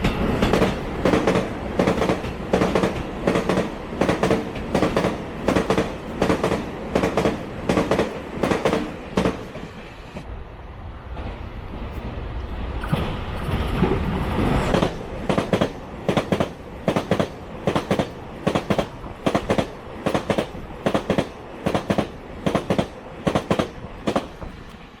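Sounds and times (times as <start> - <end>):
train wheels clacking over rail joint: 0.0 - 9.7, 14.7 - 24.8
train rumble: 0.0 - 25.0.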